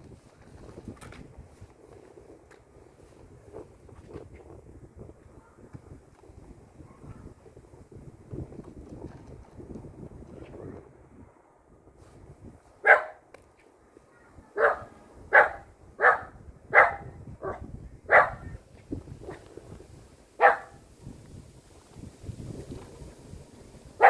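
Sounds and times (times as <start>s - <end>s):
dog barking: 5.4s - 5.6s, 6.8s - 7.4s, 12.8s - 13.2s, 14.1s - 18.6s, 20.4s - 20.8s.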